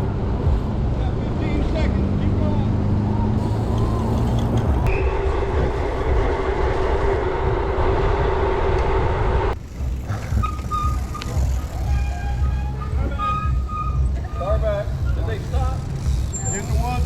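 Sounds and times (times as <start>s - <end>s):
bicycle rolling rumble: 3.4s - 17.0s.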